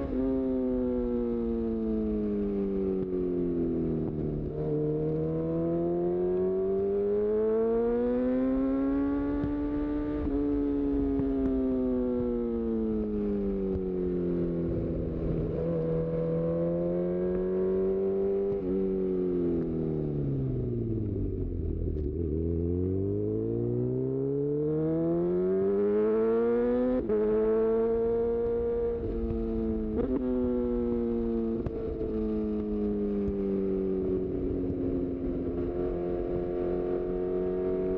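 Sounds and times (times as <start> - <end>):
motorcycle engine revving: 14.7 - 37.9.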